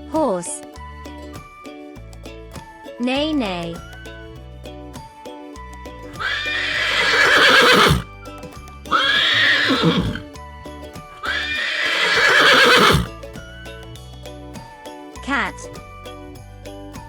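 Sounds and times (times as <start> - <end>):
soft children's music: 0.0 - 12.2, 13.0 - 17.0
horse whinnying: 6.1 - 8.1, 8.9 - 10.3, 11.2 - 13.1.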